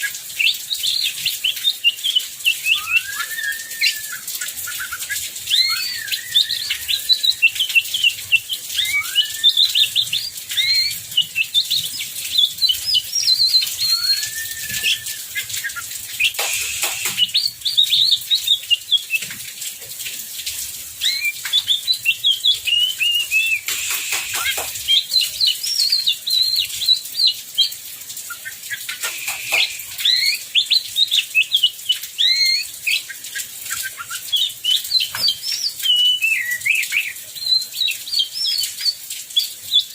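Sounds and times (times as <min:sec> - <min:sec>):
bird singing whistles and chatter: 0:00.8 - 0:19.2, 0:21.0 - 0:22.0, 0:22.7 - 0:27.7, 0:28.3 - 0:31.5, 0:32.2 - 0:39.5
heavy rain hissing: 0:02.6 - 0:18.5, 0:20.2 - 0:27.3, 0:28.0 - 0:31.5.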